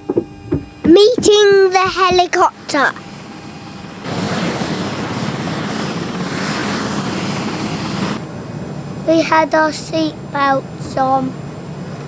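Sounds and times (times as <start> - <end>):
helicopter engine and rotor: 0.0 - 12.0.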